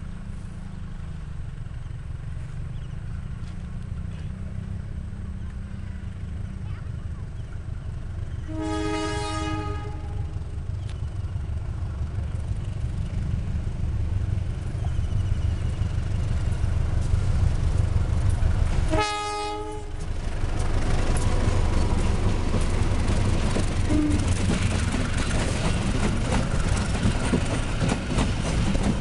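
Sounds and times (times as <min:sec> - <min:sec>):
diesel locomotive engine rumble: 0:00.0 - 0:29.0
train wheels on rails: 0:00.0 - 0:29.0
train horn blasts: 0:08.4 - 0:10.4, 0:18.9 - 0:20.0, 0:23.9 - 0:24.3.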